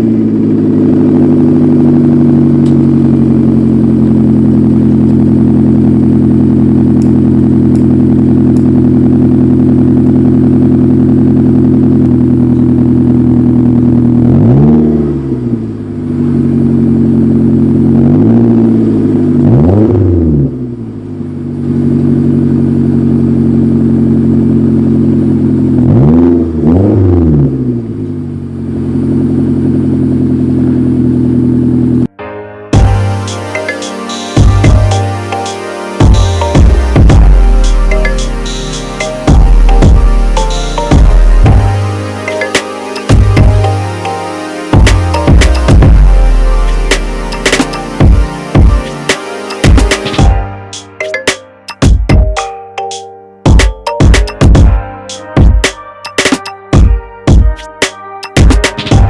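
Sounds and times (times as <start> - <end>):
car engine idling: 0.0 - 14.6, 20.6 - 25.8, 27.8 - 32.1
engine revving: 0.0 - 21.0, 21.6 - 32.0, 44.7 - 49.2.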